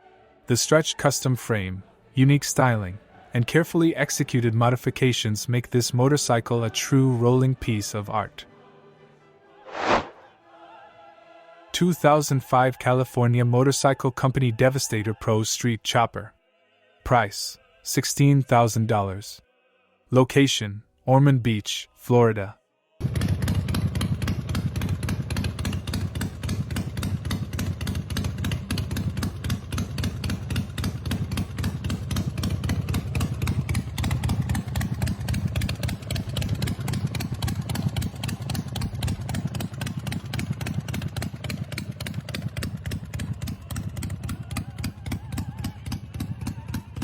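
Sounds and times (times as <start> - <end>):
motorcycle engine idling: 23.0 - 47.0.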